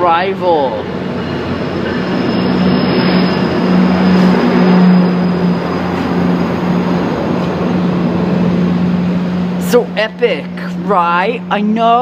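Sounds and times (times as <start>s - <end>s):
rumble of train wheels: 0.0s - 12.0s
train engine drone: 0.0s - 12.0s.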